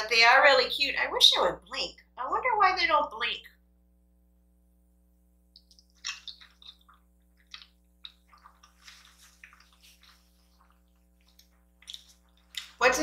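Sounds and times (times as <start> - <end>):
wet chewing and slurping noodles: 6.0 - 12.8.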